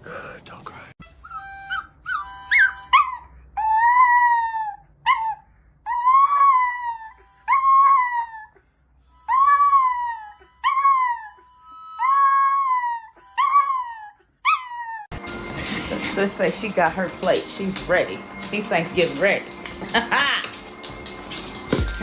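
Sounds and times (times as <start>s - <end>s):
dog howling whines: 1.2s - 8.6s, 9.3s - 15.1s.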